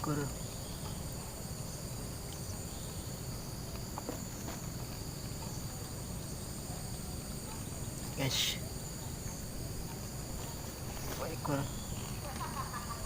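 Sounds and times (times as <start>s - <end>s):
crickets trilling: 0.0s - 13.0s
faint ticks: 2.2s - 2.5s.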